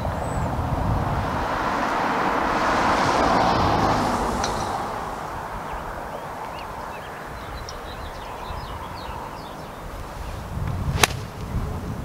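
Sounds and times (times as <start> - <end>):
vehicle passing: 0.0 - 10.4
small birds chirping faintly: 4.3 - 11.5.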